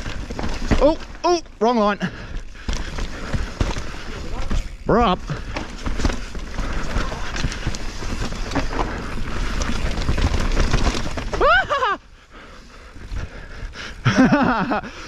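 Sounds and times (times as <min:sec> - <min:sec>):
bike rattling and knocking: 0:00.0 - 0:12.0
bike tyres on dirt trail: 0:00.0 - 0:15.0.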